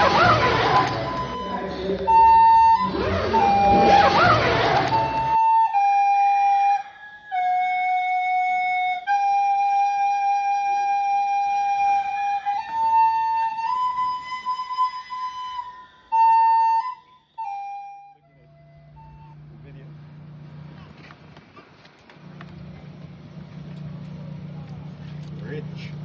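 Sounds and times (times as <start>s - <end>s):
solo flute melody: 0.0s - 20.0s.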